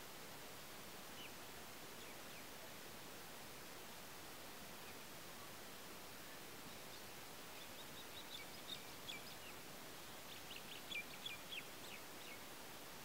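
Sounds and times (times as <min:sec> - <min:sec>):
steady hiss: 0:00.0 - 0:13.0
bird chirping: 0:06.3 - 0:12.5.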